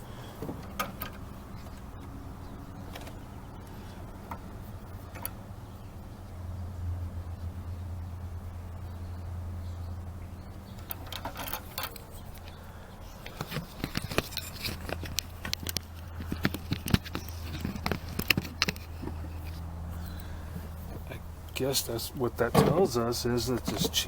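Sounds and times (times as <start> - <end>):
small parts clicking and scraping: 10.8 - 21.6.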